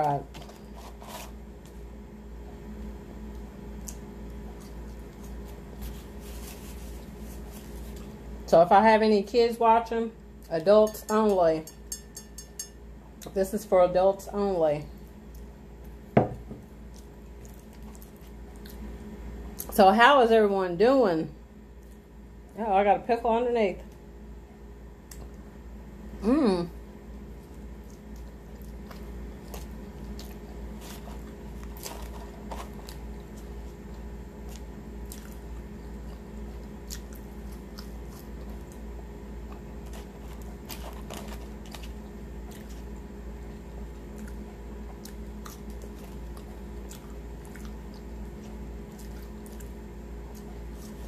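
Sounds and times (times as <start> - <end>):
wet chewing and mouth clicks: 27.5 - 38.8, 44.0 - 51.0.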